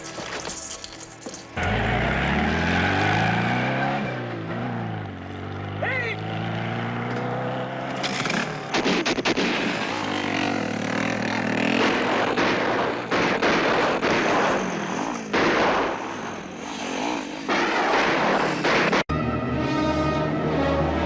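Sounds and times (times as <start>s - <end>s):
engine revving: 1.6s - 17.6s, 18.9s - 21.0s
sharp bangs: 8.0s - 19.2s.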